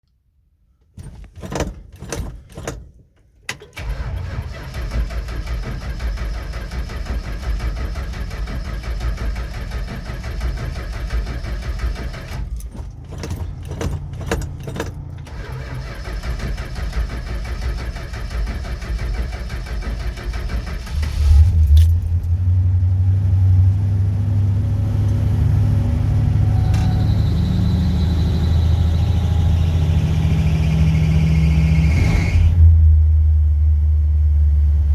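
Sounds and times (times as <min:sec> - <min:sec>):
starter cranking: 0:03.5 - 0:22.0
car engine idling: 0:03.8 - 0:32.1
keys jangling: 0:12.5 - 0:15.2.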